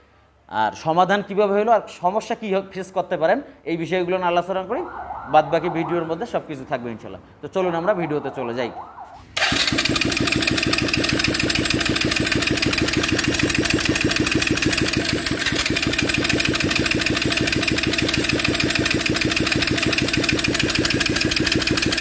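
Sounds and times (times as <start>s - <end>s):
motorcycle engine idling: 9.4s - 22.0s.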